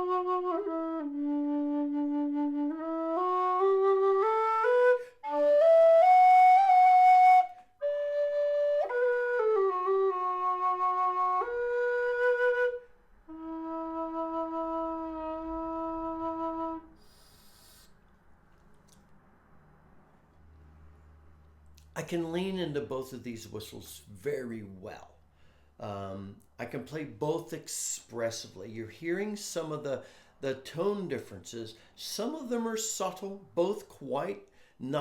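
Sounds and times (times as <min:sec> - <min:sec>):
low whistle playing slow tune: 0:00.0 - 0:18.0.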